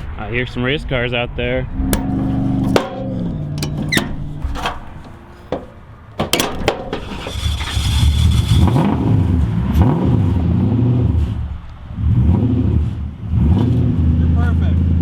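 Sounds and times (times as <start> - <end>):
sharp knocks: 1.9 - 7.1
drift car engines revving: 7.0 - 14.9.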